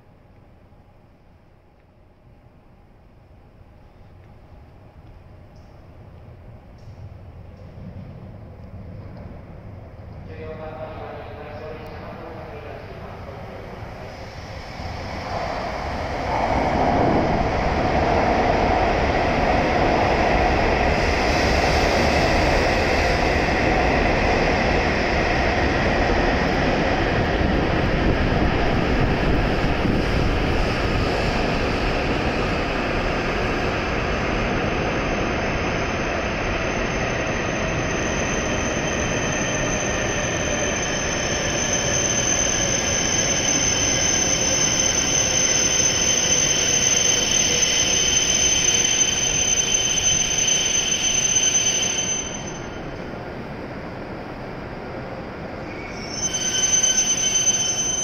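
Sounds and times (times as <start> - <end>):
train wheels rumbling on rail: 3.8 - 58.0
high thin brake squeal: 37.5 - 52.9, 55.7 - 58.0.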